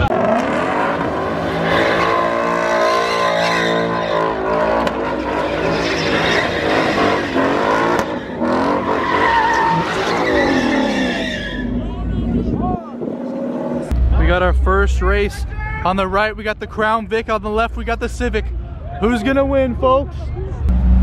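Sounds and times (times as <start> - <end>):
car engine revving hard: 0.0 - 11.0
tires squealing: 0.0 - 13.9.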